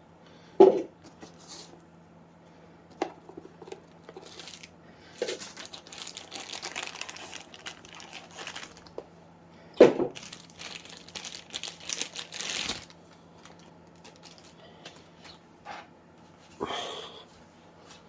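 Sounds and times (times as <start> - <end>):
packaging crinkling: 3.4 - 9.1, 10.0 - 15.4.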